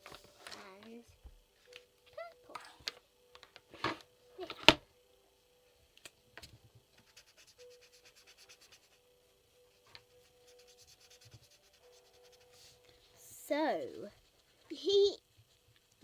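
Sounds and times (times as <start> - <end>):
pen scratching on paper: 7.1 - 9.0, 10.2 - 12.6.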